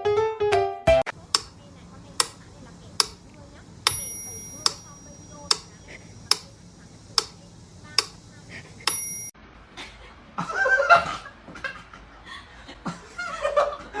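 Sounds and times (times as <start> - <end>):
small knocks: 1.2 - 6.5
sharp ticks with bell-like ring: 3.0 - 3.2, 3.8 - 8.2, 8.8 - 9.4
person laughing: 9.8 - 14.0.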